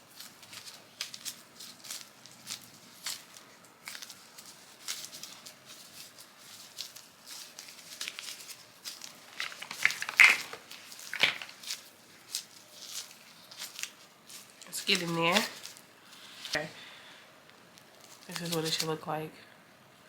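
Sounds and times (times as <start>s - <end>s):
hands working putty: 9.3s - 15.6s.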